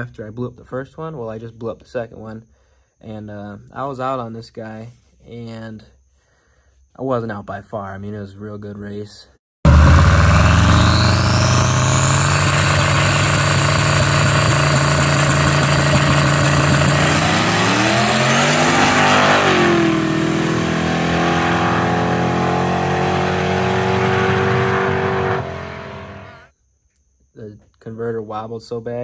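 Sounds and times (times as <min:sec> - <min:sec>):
race car engines accelerating: 0:09.7 - 0:26.5.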